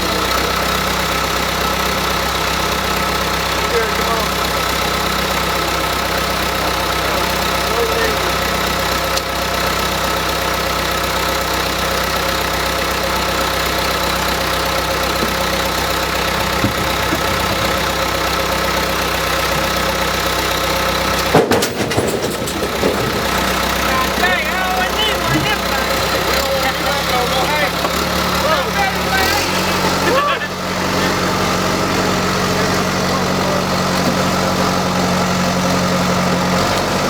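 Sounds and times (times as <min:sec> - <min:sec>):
engine running steadily: 0:00.0 - 0:37.0.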